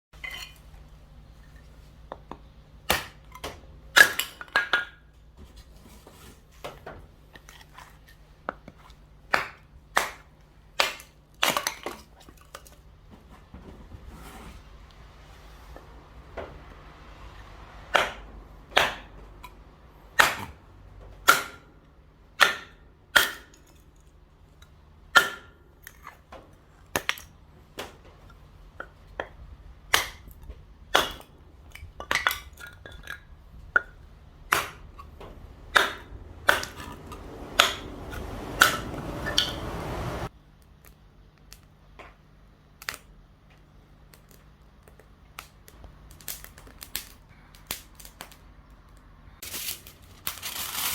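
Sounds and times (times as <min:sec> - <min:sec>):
knocks and clinks of hard objects: 0:30.9 - 0:40.0.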